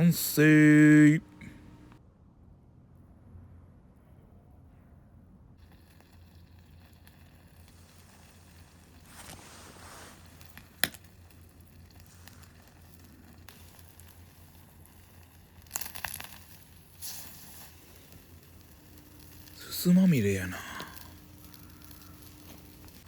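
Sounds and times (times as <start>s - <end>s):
campfire burning: 0.0s - 2.0s, 5.6s - 23.0s
crackling rustling bursts: 5.6s - 23.0s.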